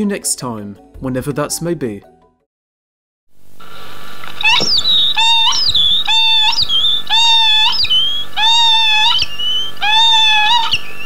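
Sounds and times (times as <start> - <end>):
bird calling: 3.7 - 11.0.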